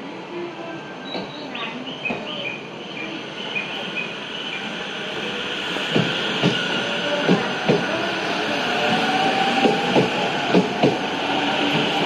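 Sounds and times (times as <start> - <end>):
electric train rolling past: 0.0 - 12.0.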